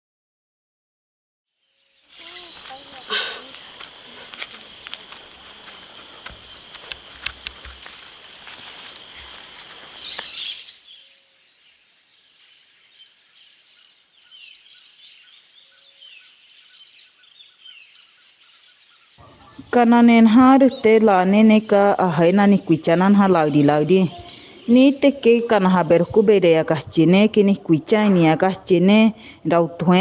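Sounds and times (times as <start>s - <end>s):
high insect drone: 1.6s - 12.6s, 19.2s - 30.0s
faint bird chirps: 2.1s - 11.1s.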